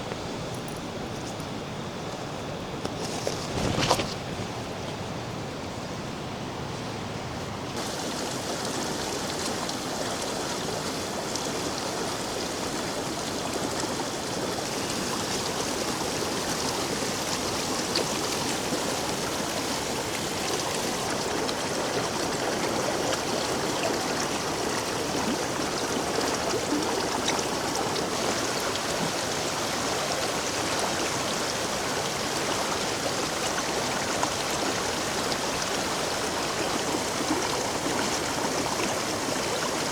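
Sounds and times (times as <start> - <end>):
rushing stream and waterfall: 7.6 - 39.9.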